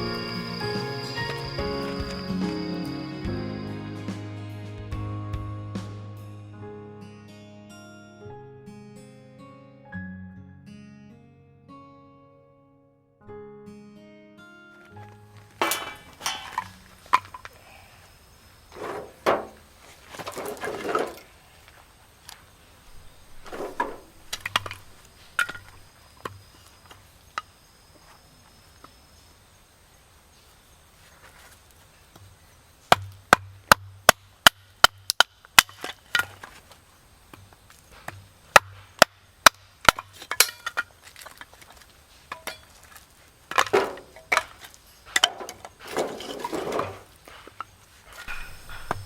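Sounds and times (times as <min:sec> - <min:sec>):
wood rustling and scraping: 0:14.9 - 0:17.6, 0:18.7 - 0:27.0, 0:31.0 - 0:31.9, 0:35.7 - 0:36.9, 0:40.0 - 0:49.0.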